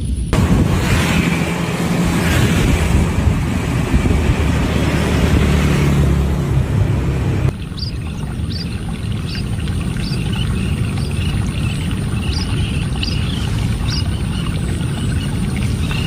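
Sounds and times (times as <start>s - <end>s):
low rumble: 0.0s - 16.0s
bird twittering: 7.5s - 16.0s
birds calling high falling calls: 7.5s - 16.0s.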